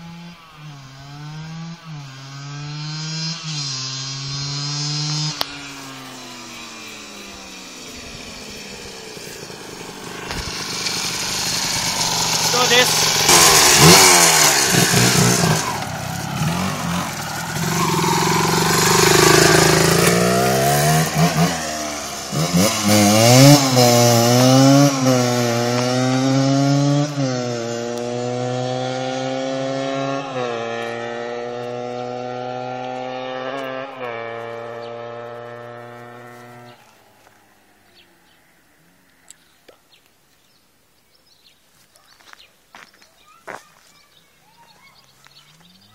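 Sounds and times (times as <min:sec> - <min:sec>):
two-stroke motorcycle engine revving: 0:00.0 - 0:36.9.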